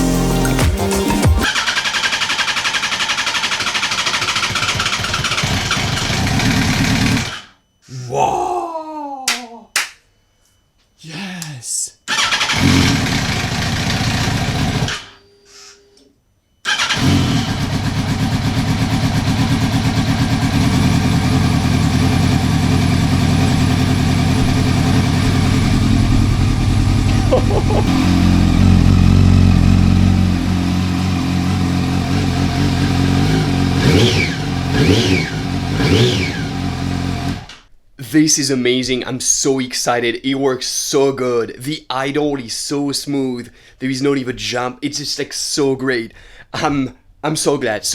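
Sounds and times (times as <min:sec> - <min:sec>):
motorcycle engine idling and revving: 0:01.4 - 0:07.4, 0:12.4 - 0:15.1, 0:16.7 - 0:37.5.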